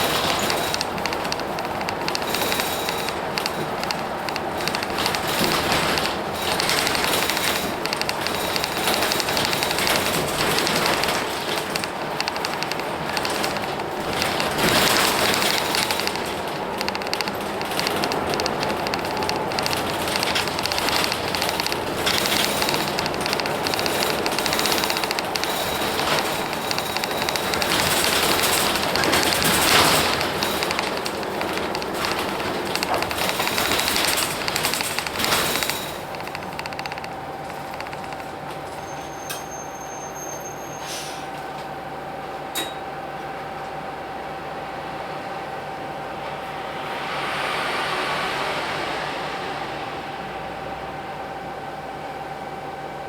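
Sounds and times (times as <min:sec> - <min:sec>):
rapid rattling and clicking: 0:00.0 - 0:38.8
bus diesel engine running: 0:00.0 - 0:39.0.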